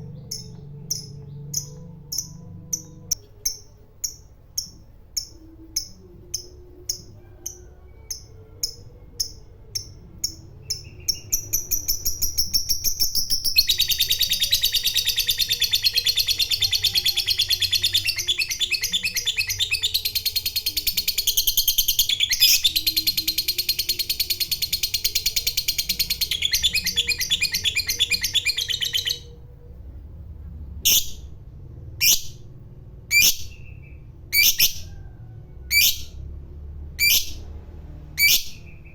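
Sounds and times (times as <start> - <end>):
lovebird chirping and trilling: 0.0 - 29.4, 30.8 - 31.4, 32.0 - 32.5, 33.1 - 36.2, 37.0 - 37.5, 38.2 - 38.9.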